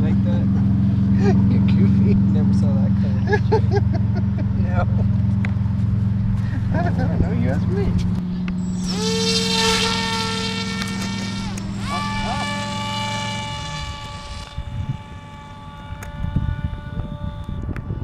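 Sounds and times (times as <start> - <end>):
low steady hum: 0.0 - 18.0
electric model plane motor whining: 8.3 - 18.0.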